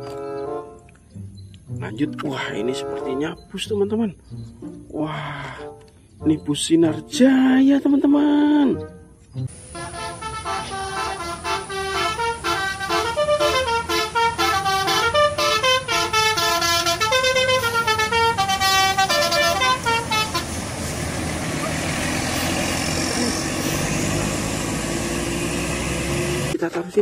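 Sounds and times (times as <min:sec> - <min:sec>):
bus engine and road noise: 0:00.0 - 0:07.2, 0:07.8 - 0:26.6
multi-tone bus horn melody: 0:02.7 - 0:03.2, 0:09.5 - 0:26.5.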